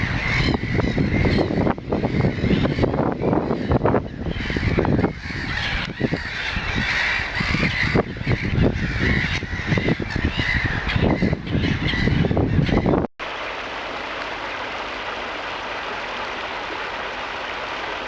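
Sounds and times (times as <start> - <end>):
birds calling: 0.0 - 13.1.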